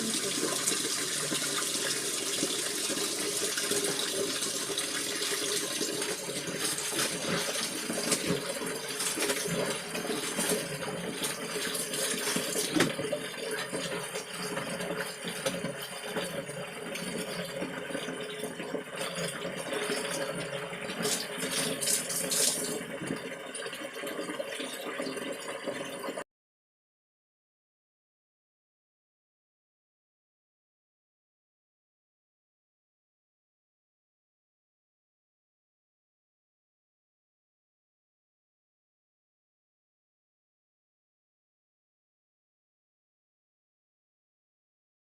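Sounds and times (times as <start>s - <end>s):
water running from a tap: 0.0s - 26.2s
laundry sloshing in a basin: 3.2s - 16.4s.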